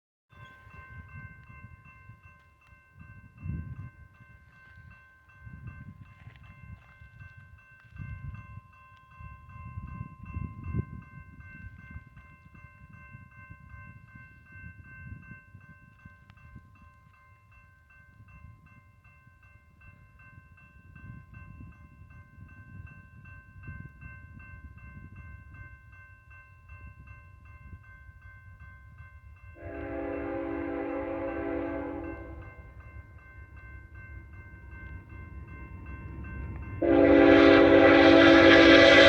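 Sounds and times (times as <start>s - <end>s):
locomotive air horn: 29.6s - 32.4s, 36.8s - 39.0s.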